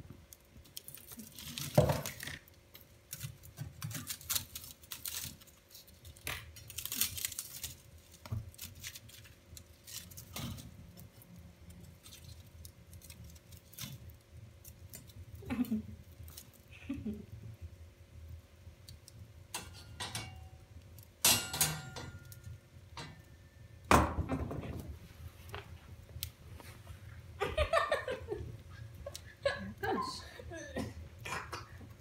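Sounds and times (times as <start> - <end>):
faint steady hum: 0.0 - 32.0
wood fire crackling and popping: 0.0 - 32.0.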